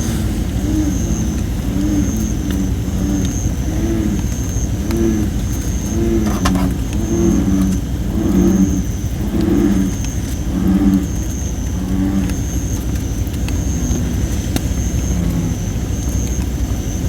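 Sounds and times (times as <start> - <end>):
bullfrogs croaking: 0.0 - 17.0
wood fire crackling: 0.0 - 17.0.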